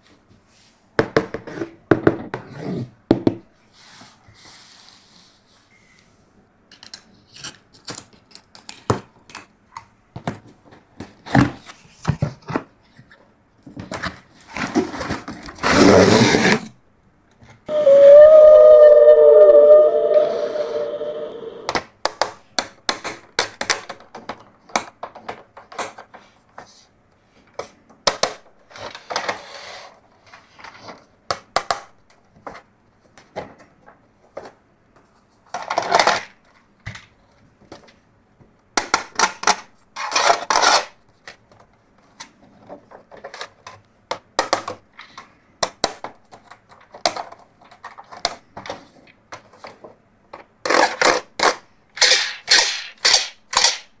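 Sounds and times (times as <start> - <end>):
rustling scrapes: 3.6 - 5.7
plastic toys clicking and clattering: 6.7 - 10.5, 21.7 - 26.4, 35.4 - 38.0, 38.8 - 54.0.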